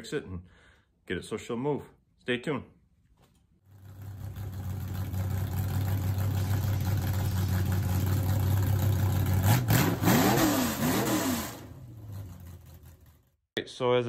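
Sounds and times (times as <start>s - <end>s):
car engine idling: 3.7s - 10.0s, 10.6s - 13.3s
car engine revving: 3.7s - 13.3s.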